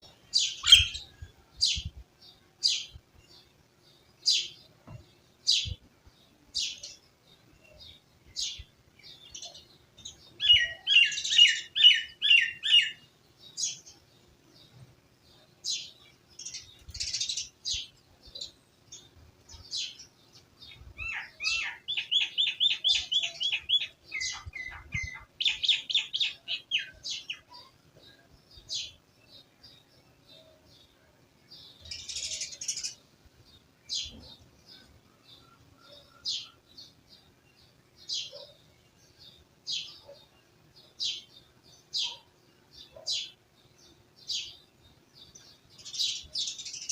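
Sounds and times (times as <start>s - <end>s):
small birds chirping: 0.0s - 46.9s
bird trills: 0.4s - 1.8s, 21.0s - 27.7s.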